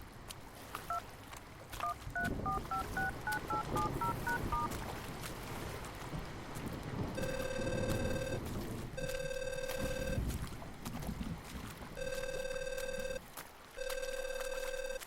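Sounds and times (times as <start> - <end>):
rain: 0.0 - 15.0
phone ringback beeps: 1.8 - 4.7, 7.2 - 8.4, 9.0 - 10.2, 12.0 - 13.2, 13.8 - 15.0
wind noise: 2.0 - 12.0.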